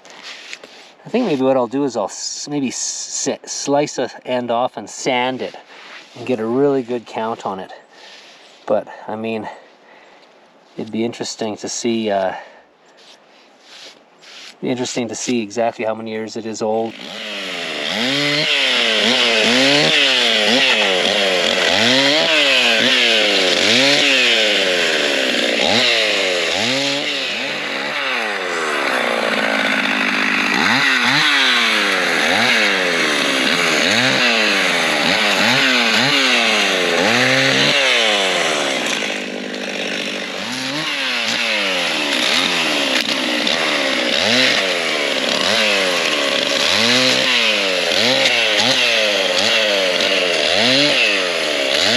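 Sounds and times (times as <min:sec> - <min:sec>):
chainsaw revving: 0:16.8 - 0:51.9.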